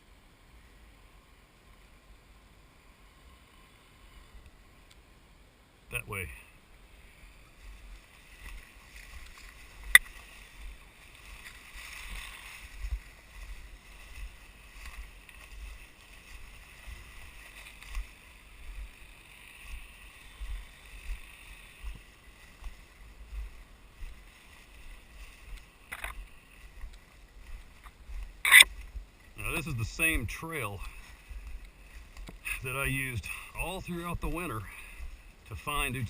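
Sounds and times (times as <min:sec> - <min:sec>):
footsteps through undergrowth: 0:07.1 - 0:36.0
rustling: 0:07.4 - 0:29.8.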